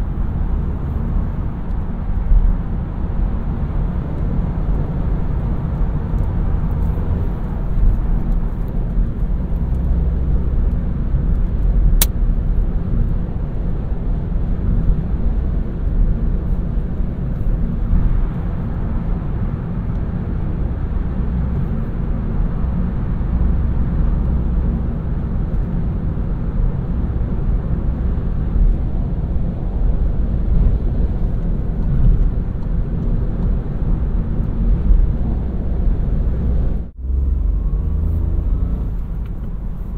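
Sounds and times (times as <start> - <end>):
car engine rumble from inside: 0.0 - 39.9
tyre road noise: 0.0 - 39.9.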